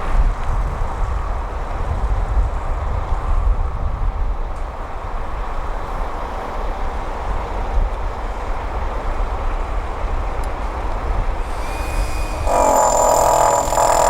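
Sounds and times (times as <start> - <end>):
construction machinery rumbling: 10.6 - 14.0
steady droning sound: 11.4 - 14.0.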